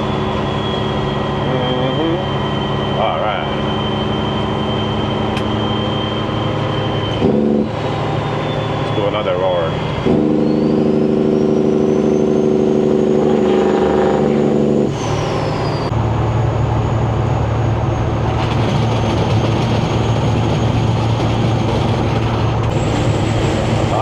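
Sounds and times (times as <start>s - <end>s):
turbo whistle: 0.0s - 15.9s
diesel truck engine droning: 0.0s - 24.0s.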